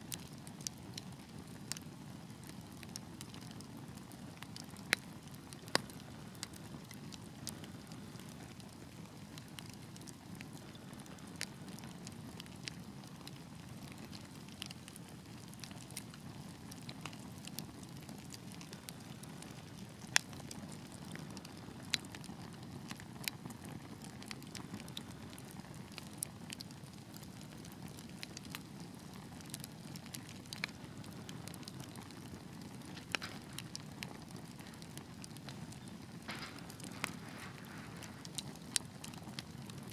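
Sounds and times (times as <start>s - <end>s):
fire pops and crackles: 0.0s - 39.9s
fire flames rushing: 30.3s - 39.9s.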